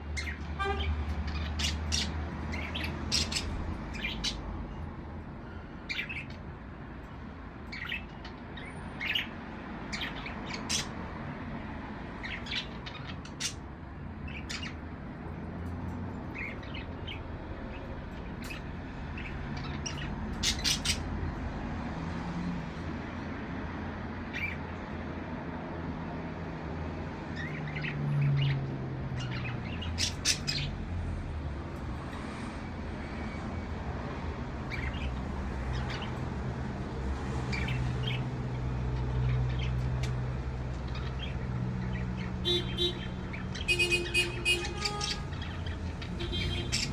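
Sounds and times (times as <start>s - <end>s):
budgerigars chirping: 0.2s - 4.4s, 7.7s - 11.0s, 12.2s - 13.6s, 14.3s - 14.8s, 16.3s - 21.2s, 29.2s - 30.8s, 34.6s - 36.2s, 37.5s - 38.2s, 40.9s - 46.9s.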